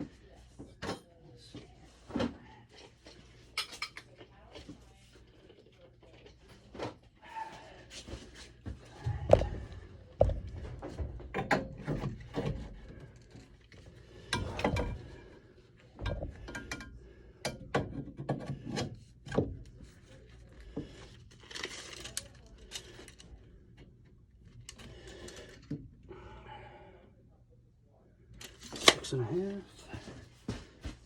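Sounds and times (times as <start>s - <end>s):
tools clicking and knocking on pipe: 8.7s - 19.7s.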